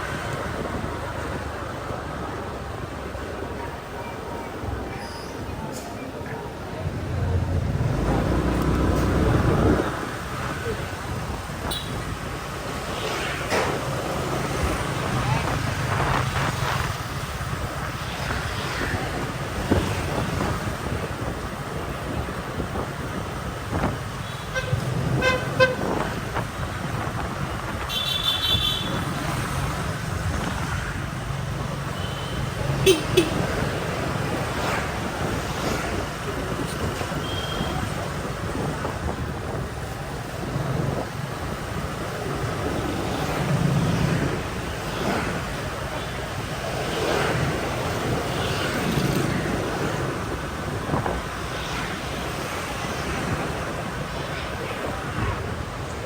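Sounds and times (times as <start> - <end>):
street traffic rumble: 0.0 - 56.0
motorbike engine rumble: 5.4 - 12.8
wind buffeting microphone: 6.6 - 12.8, 13.8 - 31.8, 32.4 - 56.0.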